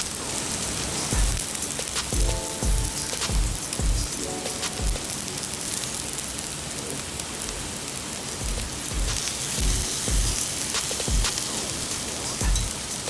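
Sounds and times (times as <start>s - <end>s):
steady hiss: 0.0s - 13.0s
background music with low beat: 1.1s - 5.4s, 8.4s - 11.5s, 12.4s - 13.0s.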